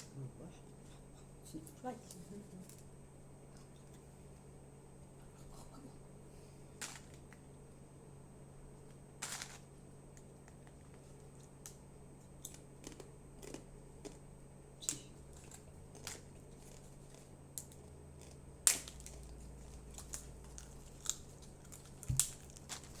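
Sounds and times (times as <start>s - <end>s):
low steady hum: 0.0s - 23.0s
chips crunching when chewed: 9.2s - 14.2s, 15.2s - 23.0s.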